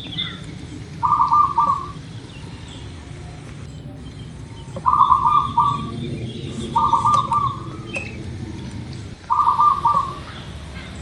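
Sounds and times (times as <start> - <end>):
dove cooing: 0.0 - 2.1, 4.7 - 11.0.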